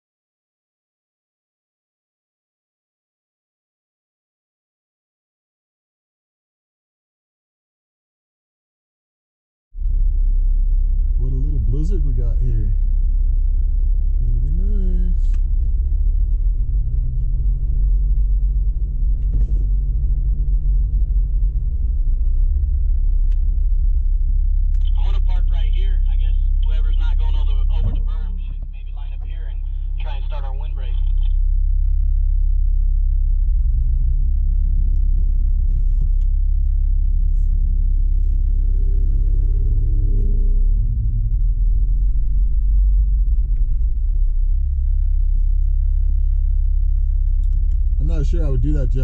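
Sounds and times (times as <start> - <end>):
engine and tyres rumbling: 9.8 - 49.0.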